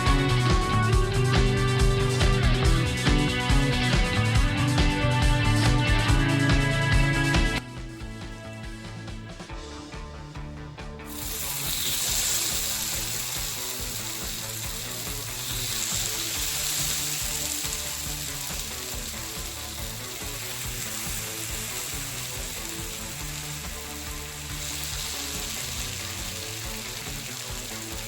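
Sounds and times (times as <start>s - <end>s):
food sizzling on hot platter: 11.1s - 28.0s.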